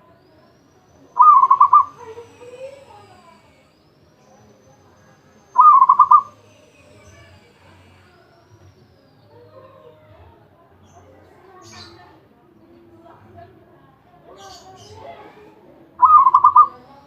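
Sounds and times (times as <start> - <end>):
dove cooing: 1.2 - 2.9, 5.6 - 6.4, 16.0 - 16.8.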